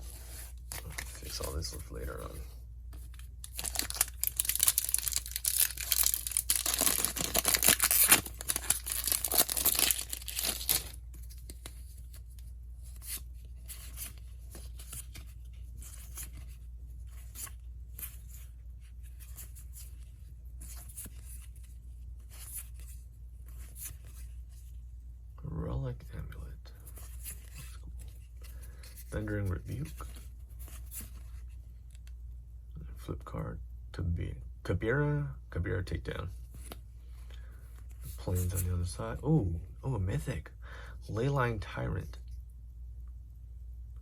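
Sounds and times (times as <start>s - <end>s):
cards rustling: 0.0s - 24.4s
foil wrapper tearing and crinkling: 3.4s - 11.0s.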